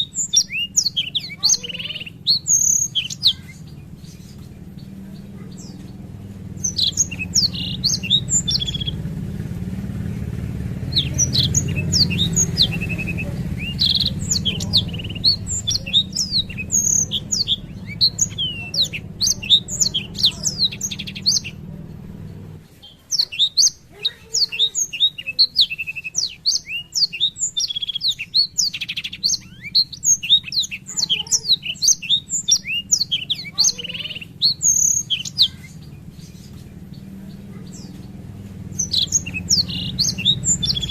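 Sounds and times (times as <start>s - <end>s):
low steady hum: 0.0s - 22.8s
canary singing: 0.0s - 40.9s.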